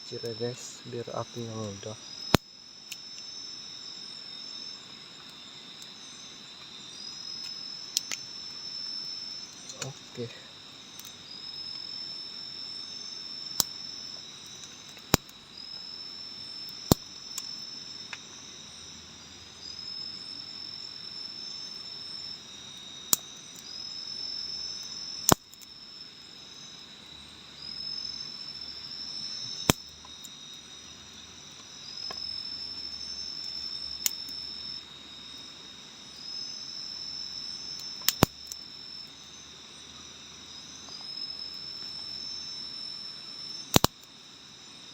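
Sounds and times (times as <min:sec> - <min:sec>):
higher rising insect call: 0:00.0 - 0:44.9
insects droning: 0:00.0 - 0:44.9
sharp loud clicks: 0:43.7 - 0:44.0.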